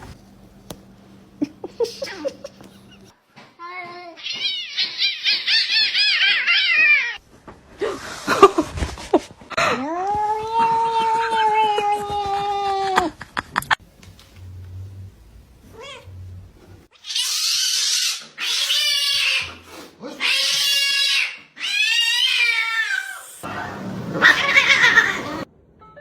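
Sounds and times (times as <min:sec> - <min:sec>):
cat yowling: 0:04.2 - 0:07.2, 0:20.2 - 0:25.5.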